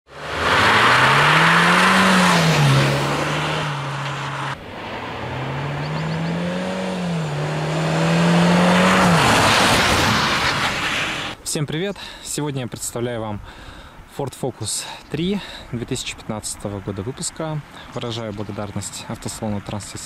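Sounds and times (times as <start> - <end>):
car engine accelerating hard: 0.1 - 11.4
road and wind noise: 0.1 - 20.0.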